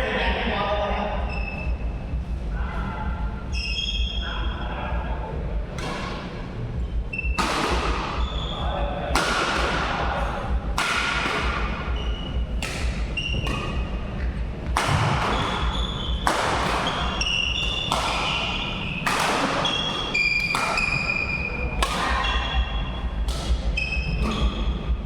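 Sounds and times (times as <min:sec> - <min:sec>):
shoes squeaking on court: 0:01.2 - 0:01.8, 0:06.9 - 0:08.6, 0:11.8 - 0:24.8
rackets hitting shuttlecock: 0:05.6 - 0:06.4, 0:07.1 - 0:22.5, 0:23.1 - 0:24.4.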